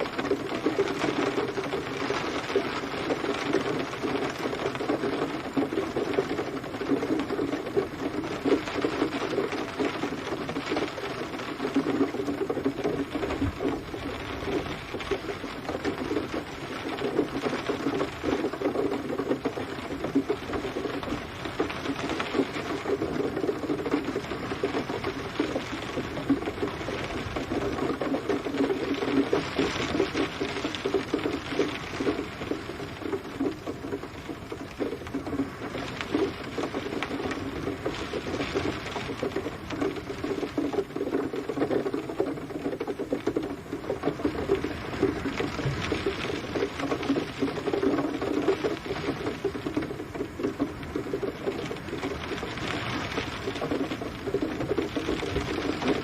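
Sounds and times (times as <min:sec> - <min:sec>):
heavy rain on hard surface: 0:00.0 - 0:56.0.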